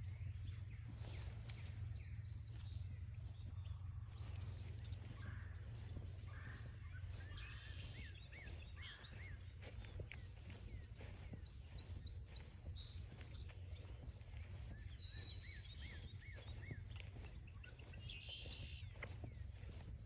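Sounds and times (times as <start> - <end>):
low steady rumble: 0.0 - 7.7
songbirds chirping and whistling: 0.0 - 20.0.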